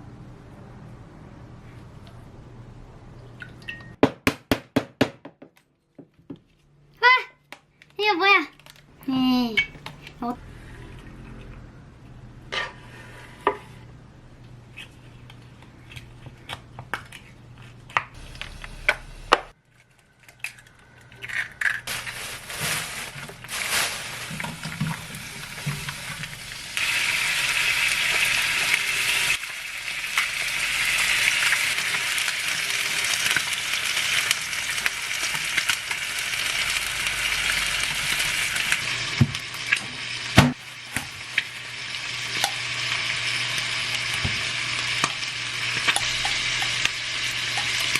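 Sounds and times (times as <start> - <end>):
kitchen utensils clinking: 9.5 - 10.2
food sizzling in a pan: 21.9 - 47.9.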